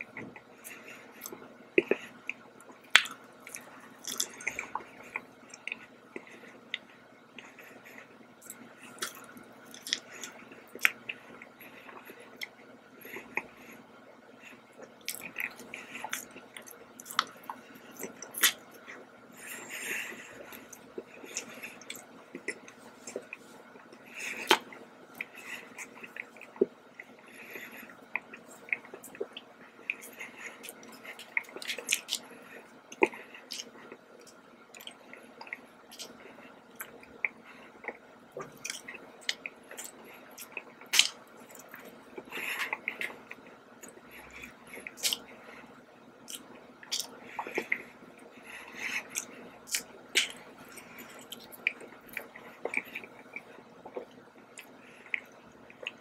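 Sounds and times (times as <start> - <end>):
person chewing donut: 0.0 - 56.0.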